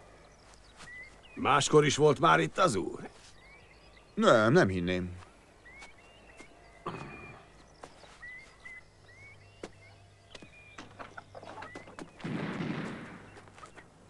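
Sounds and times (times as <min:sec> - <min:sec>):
small bird chirping: 0:00.1 - 0:12.3
light footsteps: 0:00.4 - 0:01.4, 0:05.1 - 0:12.2.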